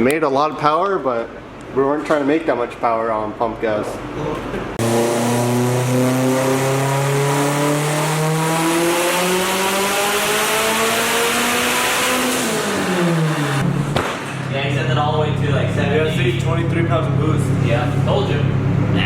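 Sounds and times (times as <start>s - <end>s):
turbocharged car engine revving: 4.8s - 19.0s.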